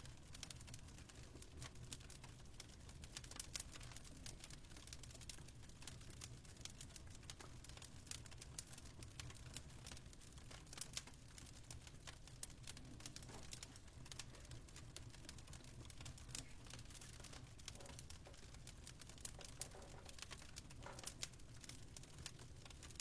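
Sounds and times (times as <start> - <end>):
fire crackling: 0.0 - 23.0.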